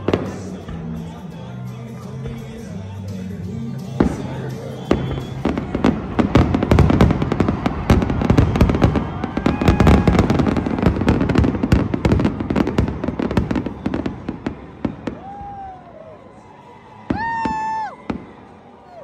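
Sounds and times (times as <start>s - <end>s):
fireworks bangs and crackles: 0.0s - 1.1s, 3.8s - 15.8s, 17.1s - 18.5s.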